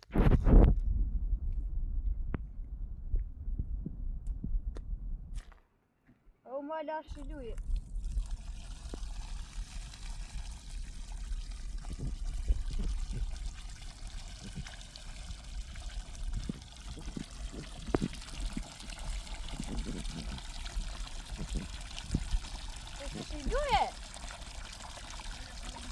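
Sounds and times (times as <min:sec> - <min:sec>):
low rumble: 0:00.2 - 0:05.4
water pouring and trickling: 0:07.1 - 0:25.9.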